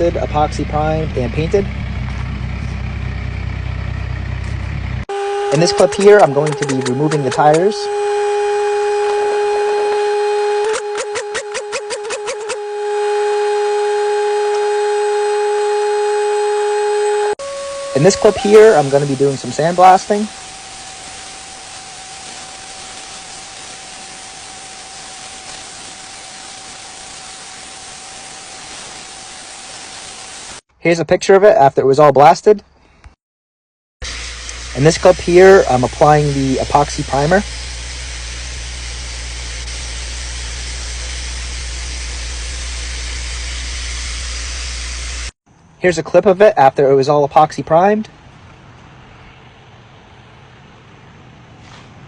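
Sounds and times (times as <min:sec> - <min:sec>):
steady low hum: 0:00.0 - 0:30.5, 0:34.0 - 0:45.4
steady whistle: 0:05.1 - 0:28.5
sandblaster hissing: 0:05.1 - 0:30.6, 0:34.0 - 0:45.4.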